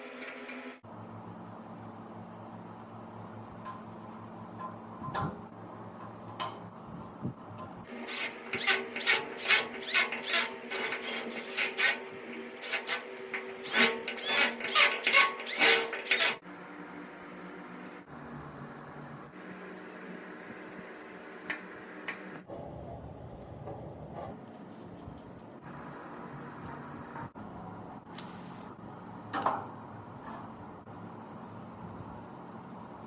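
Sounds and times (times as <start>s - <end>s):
hand tools clicking and scraping metal: 7.9s - 16.4s.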